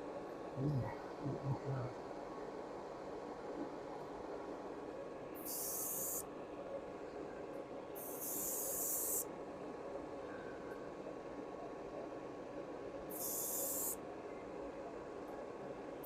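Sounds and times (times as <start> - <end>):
airbrush spraying: 8.0 - 9.2.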